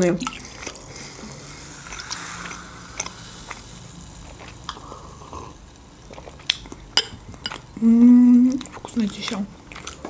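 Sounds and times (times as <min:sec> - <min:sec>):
close chewing: 0:08.6 - 0:10.0.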